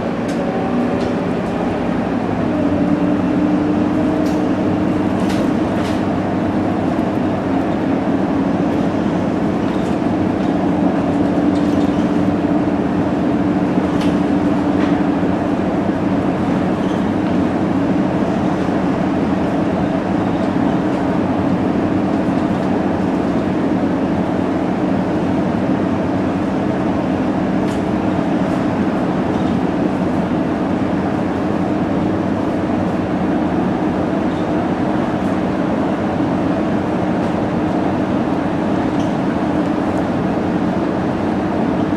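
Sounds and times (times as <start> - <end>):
bus diesel engine droning: 0.0 - 41.9.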